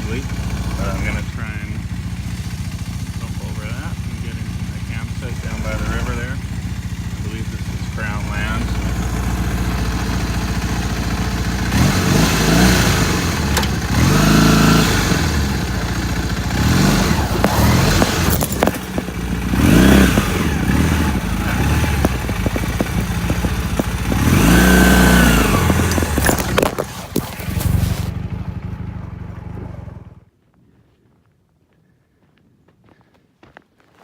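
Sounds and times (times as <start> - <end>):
motorcycle engine revving: 0.0 - 30.3
clattering knocks: 17.1 - 27.8.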